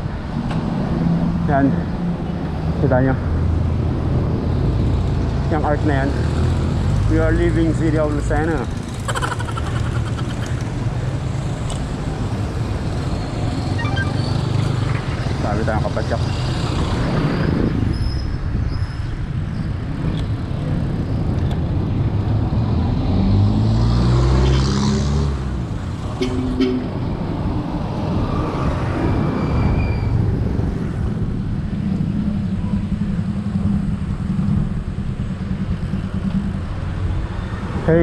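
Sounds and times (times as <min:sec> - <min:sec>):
vehicle engine: 0:00.0 - 0:17.8, 0:20.4 - 0:38.0
road traffic passing: 0:00.0 - 0:38.0
wind rumbling on microphone: 0:16.5 - 0:23.2.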